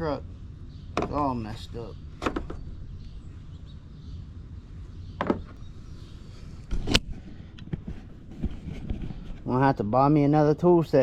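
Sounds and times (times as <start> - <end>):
sharp knocks: 1.0 - 1.2, 2.2 - 2.7, 5.2 - 5.6.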